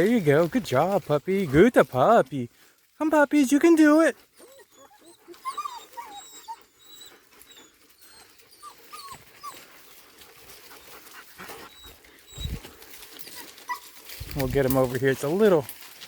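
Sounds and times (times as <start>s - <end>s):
puppies whining: 4.2s - 14.6s.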